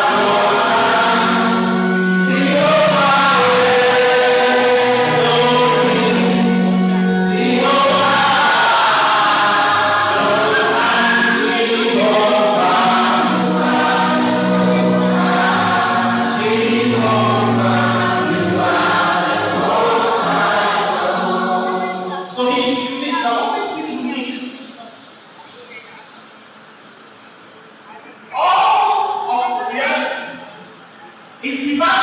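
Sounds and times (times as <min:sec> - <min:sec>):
choir singing gospel song: 0:00.0 - 0:23.3, 0:31.5 - 0:32.0.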